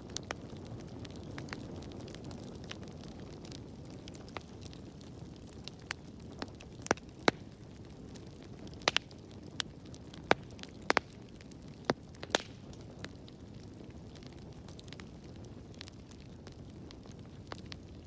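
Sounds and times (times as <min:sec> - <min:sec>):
wood fire crackling: 0:00.0 - 0:18.0
sharp pops and snaps: 0:05.9 - 0:07.6, 0:08.7 - 0:09.2, 0:10.2 - 0:11.2, 0:11.8 - 0:12.9.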